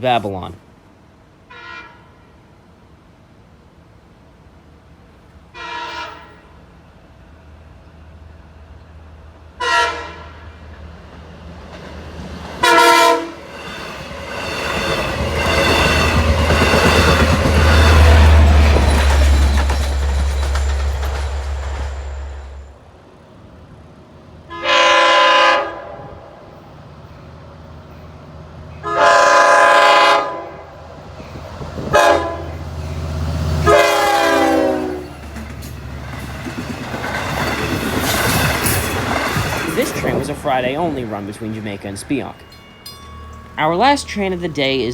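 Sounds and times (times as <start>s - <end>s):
train engine and wheels: 0.0s - 44.9s
train horn blasts: 1.5s - 2.3s, 5.5s - 6.6s, 9.6s - 10.6s, 12.6s - 13.4s, 24.5s - 26.3s, 28.8s - 30.8s, 31.9s - 32.6s, 33.6s - 35.1s.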